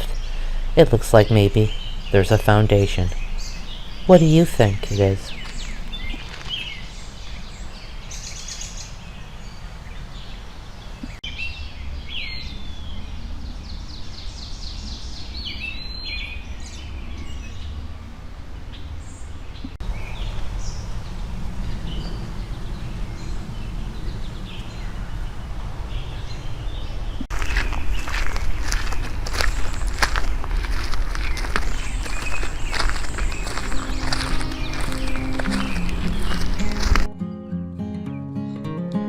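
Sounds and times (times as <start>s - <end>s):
wild birds chirping: 0.0s - 37.1s
low outdoor rumble: 16.6s - 37.1s.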